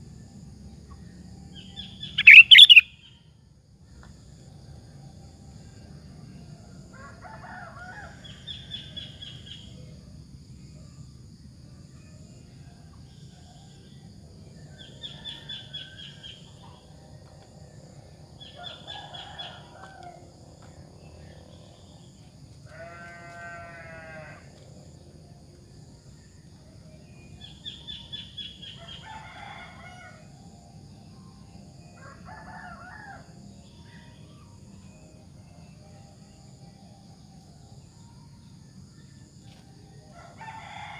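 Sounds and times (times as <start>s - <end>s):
bird singing trills: 1.6s - 3.2s.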